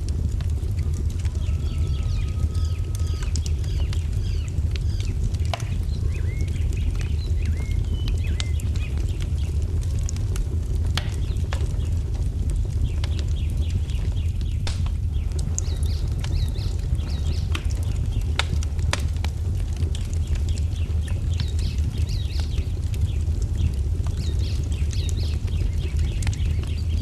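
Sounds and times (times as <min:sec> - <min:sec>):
wood fire crackling: 0:00.0 - 0:27.0
songbirds chirping: 0:00.4 - 0:27.0.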